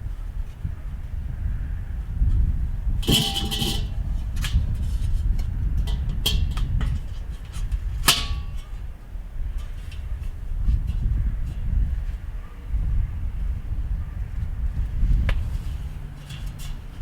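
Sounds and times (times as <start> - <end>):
sharp metal clank: 3.0 - 4.0
ringing metallic rattle: 3.0 - 4.6
metal grill parts clinking: 3.0 - 4.8, 5.8 - 8.8, 16.2 - 17.0.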